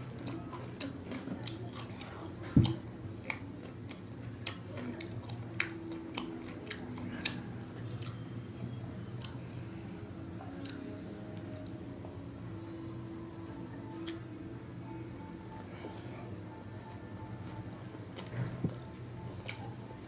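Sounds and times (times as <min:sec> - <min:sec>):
chewing bread with mouth clicks: 0:00.0 - 0:09.6, 0:10.4 - 0:11.8, 0:16.9 - 0:20.0.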